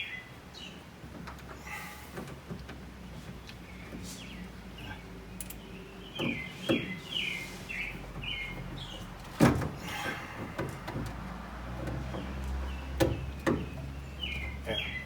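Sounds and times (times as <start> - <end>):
birds chirping: 0.0 - 15.0
sharp knocks: 8.6 - 13.9.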